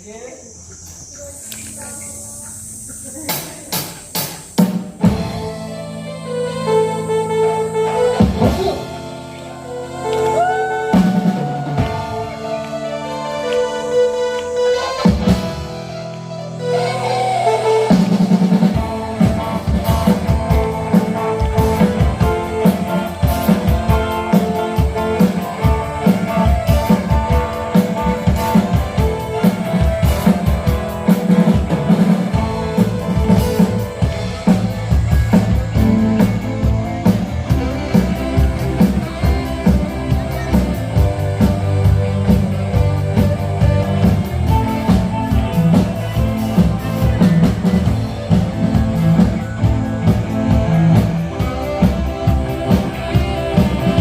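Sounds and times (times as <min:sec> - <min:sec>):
guitar: 0:00.0 - 0:54.0
instrumental rock band: 0:00.8 - 0:54.0
drum kit beat: 0:02.8 - 0:06.0, 0:06.6 - 0:54.0.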